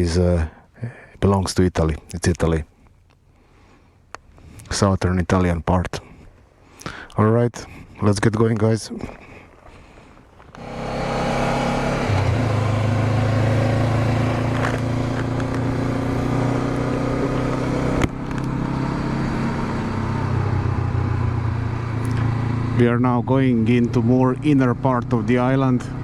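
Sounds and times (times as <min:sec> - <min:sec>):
motorcycle engine running: 0:10.5 - 0:26.0.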